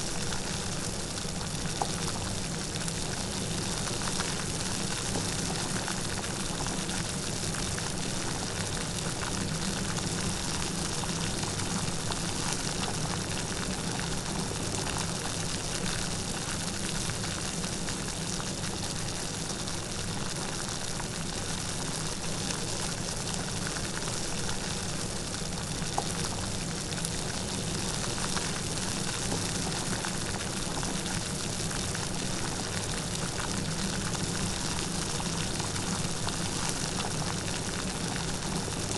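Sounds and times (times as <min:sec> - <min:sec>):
light rain patter: 0:21.4 - 0:38.9.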